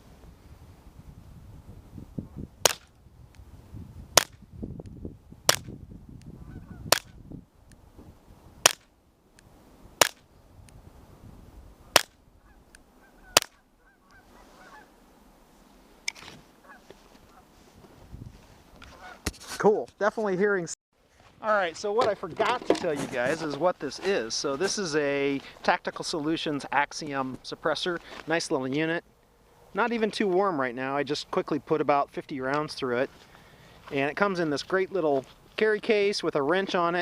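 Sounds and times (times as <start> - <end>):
suppressed pistol shots: 2.6 - 2.9, 5.5 - 5.7, 8.6 - 8.9, 10.0 - 10.2, 11.9 - 12.2, 13.4 - 13.6.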